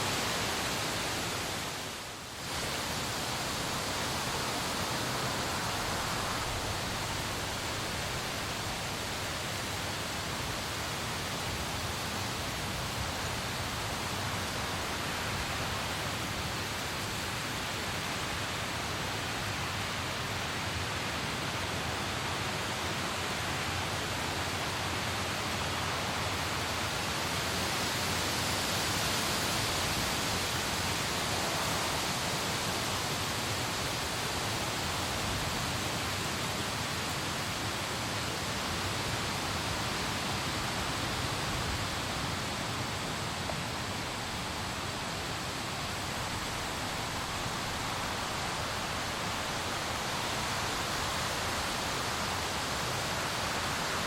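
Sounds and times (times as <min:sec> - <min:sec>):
rain hissing: 0:00.0 - 0:18.1, 0:29.4 - 0:54.0.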